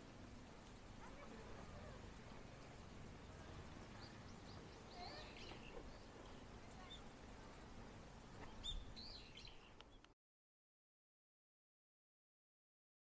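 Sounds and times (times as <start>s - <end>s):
songbirds chirping: 0.0s - 10.2s.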